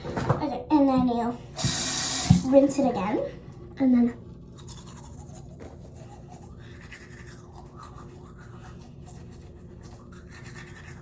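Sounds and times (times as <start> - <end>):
toothbrush scrubbing teeth: 4.3 - 11.0.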